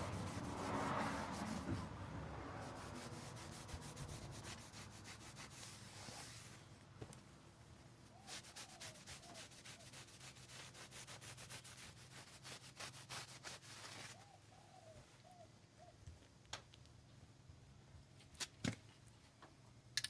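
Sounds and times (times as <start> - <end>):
rapid rubbing strokes: 0.0 - 2.0, 2.6 - 6.6, 8.2 - 14.2.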